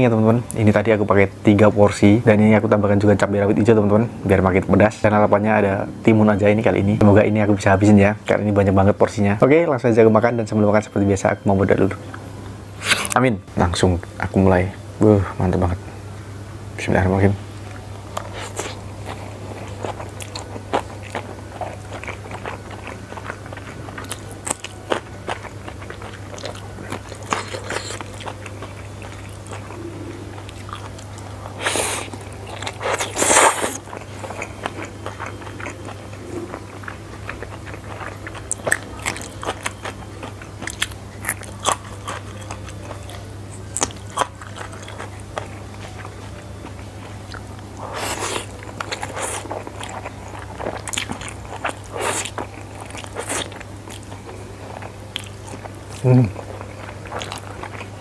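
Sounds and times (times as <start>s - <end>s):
man chewing noodles: 18.0s - 58.0s.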